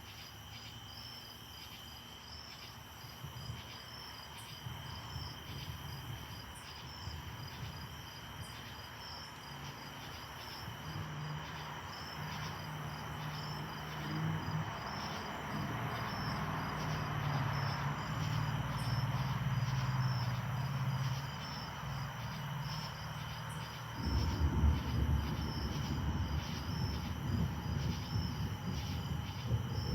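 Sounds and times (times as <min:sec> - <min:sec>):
insects chirping: 0:00.0 - 0:29.9
vehicle passing: 0:10.9 - 0:29.9
uneven low rumble: 0:24.0 - 0:29.9.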